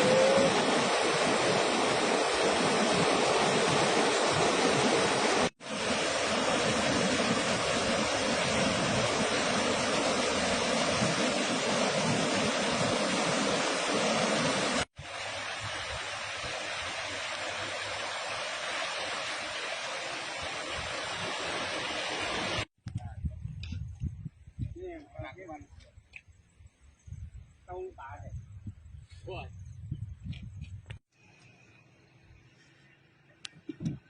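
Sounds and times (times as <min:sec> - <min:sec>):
storm rain rushing: 0:00.0 - 0:16.7.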